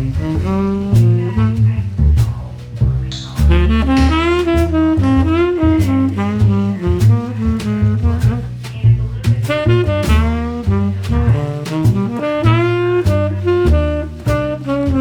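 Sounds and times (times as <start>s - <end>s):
drum kit: 0.0s - 15.0s
walking double bass: 0.0s - 15.0s
saxophone melody: 3.1s - 7.8s.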